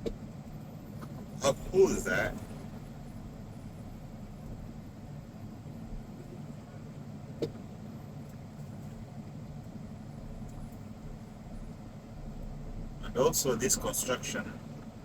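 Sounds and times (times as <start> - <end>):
road noise: 0.4 - 15.0
diesel truck engine rumble: 0.6 - 12.0.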